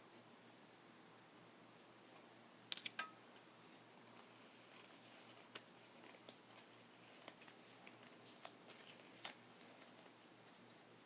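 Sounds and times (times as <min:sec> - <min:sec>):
trading cards rustling: 0:04.1 - 0:10.9.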